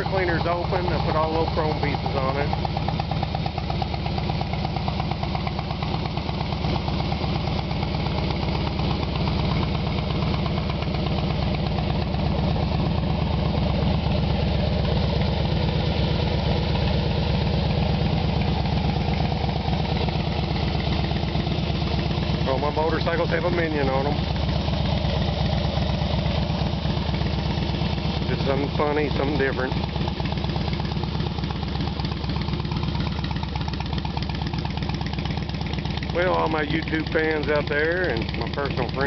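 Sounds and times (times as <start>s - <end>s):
motorcycle engine idling: 0.0s - 39.0s.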